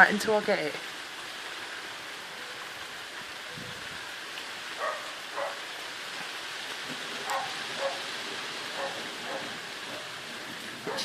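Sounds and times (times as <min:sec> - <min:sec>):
heavy rain falling: 0:00.0 - 0:11.0
dog barks: 0:04.8 - 0:05.7, 0:07.2 - 0:08.1, 0:08.7 - 0:10.1.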